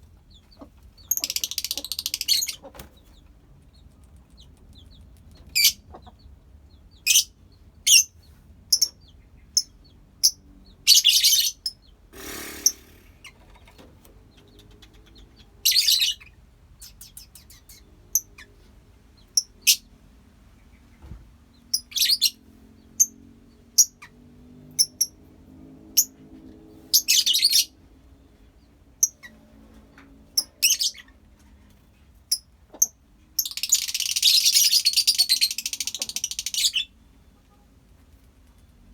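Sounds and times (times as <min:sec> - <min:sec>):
lovebirds chirping: 0:00.2 - 0:12.0, 0:12.6 - 0:25.1, 0:30.4 - 0:31.2, 0:32.3 - 0:37.0
birds chattering together: 0:00.3 - 0:08.1, 0:08.7 - 0:18.6, 0:32.3 - 0:37.0.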